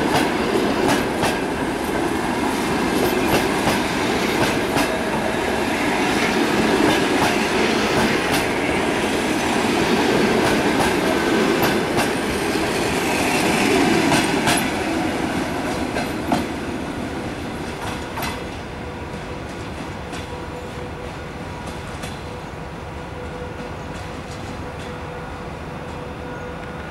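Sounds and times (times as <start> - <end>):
train wheels clicking over rail joints: 0.0 - 5.4, 6.2 - 9.1, 9.9 - 16.6, 17.6 - 20.4.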